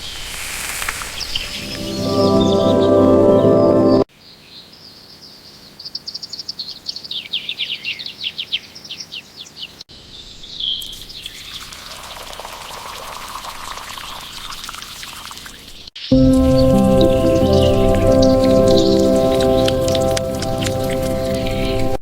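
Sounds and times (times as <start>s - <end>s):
steady hissing noise: 0.0s - 3.8s.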